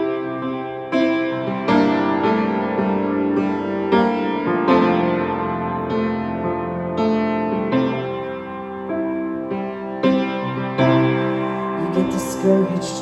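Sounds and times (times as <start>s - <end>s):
piano chords: 0.0s - 13.0s
person singing: 11.4s - 13.0s.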